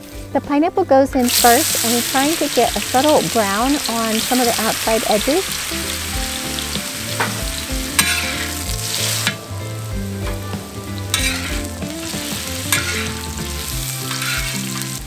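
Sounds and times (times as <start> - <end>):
pineapple sizzling in hot fat: 1.2 - 15.0
spatula scraping metal disc: 11.1 - 11.8, 12.4 - 15.0.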